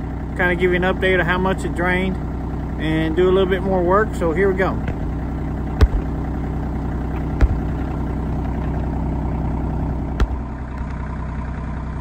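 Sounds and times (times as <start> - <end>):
tractor engine running: 0.0 - 12.0
sharp clunks: 4.8 - 9.4, 10.1 - 10.6.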